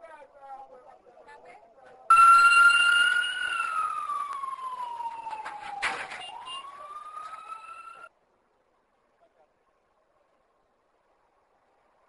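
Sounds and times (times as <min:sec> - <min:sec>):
emergency vehicle siren wailing: 0:02.1 - 0:08.1.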